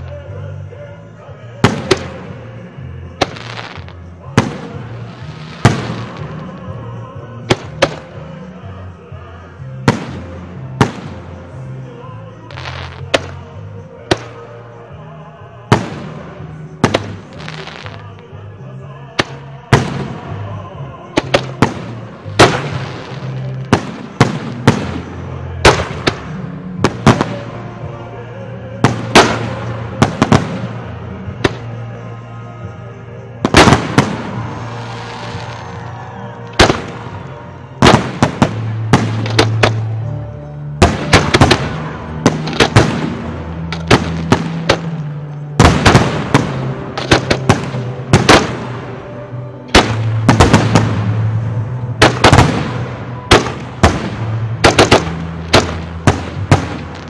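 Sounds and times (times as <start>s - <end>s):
music playing: 0.0s - 57.0s.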